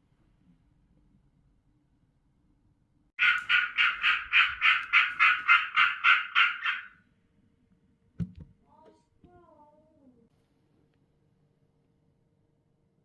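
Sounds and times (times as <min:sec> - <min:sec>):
frog croaking: 0:03.2 - 0:07.0.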